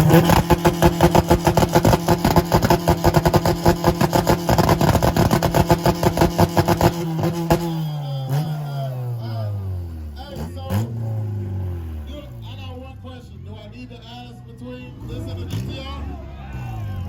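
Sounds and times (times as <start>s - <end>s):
exhaust pops and bangs: 0.0s - 7.8s
car engine on rev limiter: 0.0s - 13.3s, 14.8s - 17.0s.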